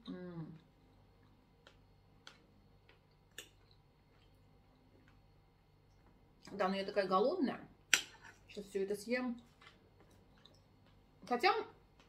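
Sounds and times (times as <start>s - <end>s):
person chewing soft food: 0.5s - 6.4s, 9.5s - 11.1s.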